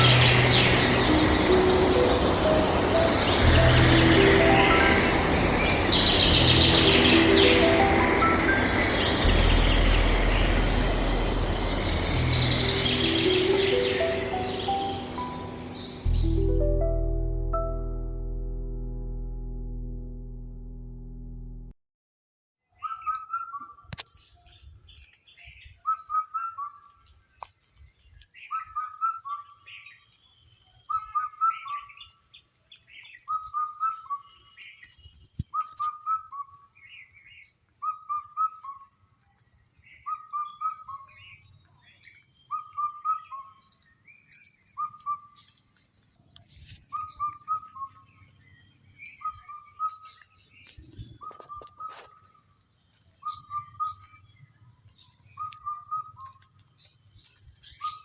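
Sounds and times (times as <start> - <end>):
steady high hiss: 0.0 - 16.8.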